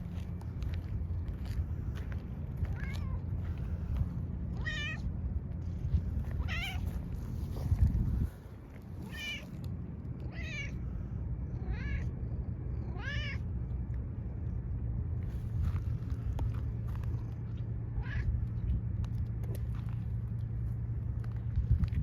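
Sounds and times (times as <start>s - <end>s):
low rumble: 0.0s - 22.0s
cat meowing: 4.6s - 5.0s, 6.4s - 6.9s, 9.0s - 9.5s, 10.3s - 10.8s, 11.6s - 12.1s, 12.8s - 13.4s.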